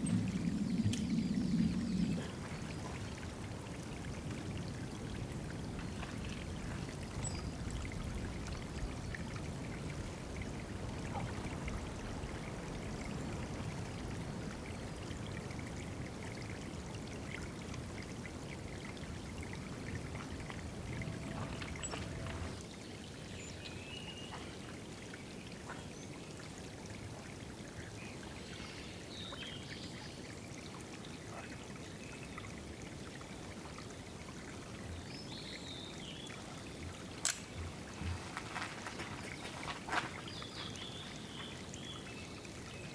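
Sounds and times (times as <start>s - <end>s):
water pouring and trickling: 0.0s - 42.9s.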